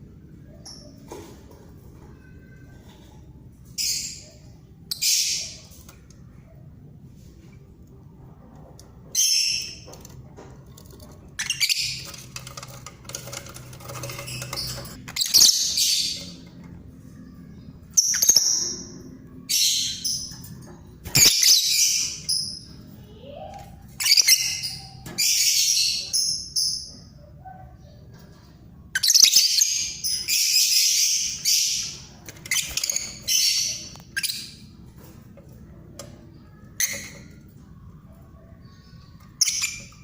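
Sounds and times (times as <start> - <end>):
harsh high-pitched bird calls: 3.7 - 5.8, 13.9 - 16.5, 17.2 - 28.0, 28.9 - 34.7.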